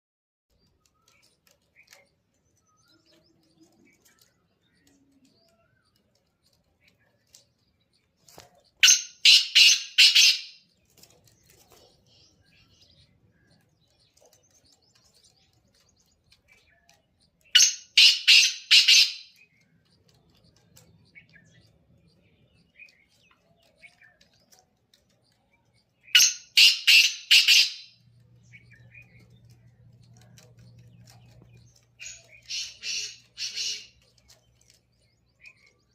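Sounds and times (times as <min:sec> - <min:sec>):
francolin calling: 0:08.8 - 0:10.6, 0:17.6 - 0:19.4, 0:26.2 - 0:28.0, 0:32.0 - 0:34.0.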